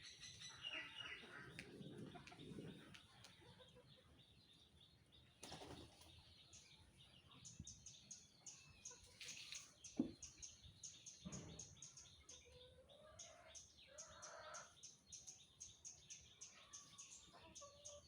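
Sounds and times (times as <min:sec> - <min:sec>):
small bird chirping: 0:00.0 - 0:18.0.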